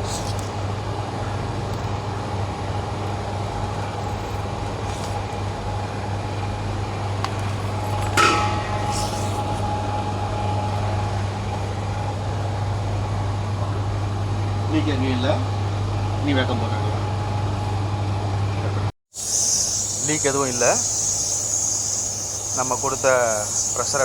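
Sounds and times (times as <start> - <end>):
faint steady whine: 0.0 - 24.0
machinery humming: 0.0 - 24.0
short hiss-like burst: 8.6 - 9.9, 19.2 - 23.8.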